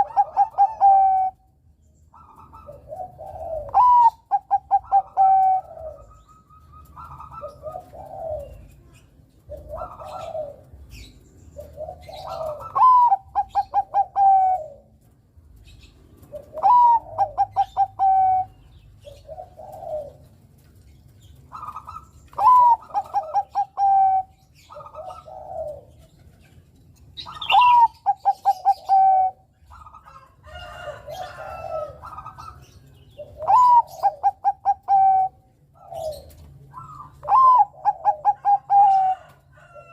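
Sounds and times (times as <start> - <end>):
dove singing clipped notes and coos: 0.0 - 39.9
soft low dove coos: 2.2 - 10.9, 16.2 - 20.4, 21.6 - 26.3, 33.2 - 39.9.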